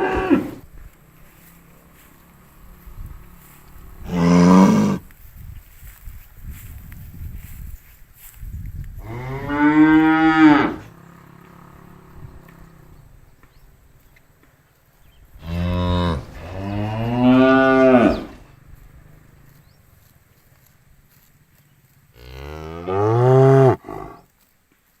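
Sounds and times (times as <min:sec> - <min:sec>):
cow mooing: 0:00.0 - 0:00.7, 0:01.3 - 0:05.0, 0:09.0 - 0:13.0, 0:15.4 - 0:19.2, 0:22.2 - 0:24.3.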